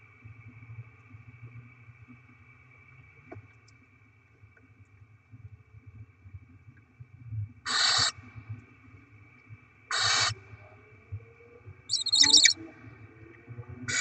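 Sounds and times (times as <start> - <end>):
owl nestlings hissing screeches: 7.7 - 8.1, 9.9 - 10.3, 11.9 - 12.6
rapid high chittering call: 11.9 - 12.6.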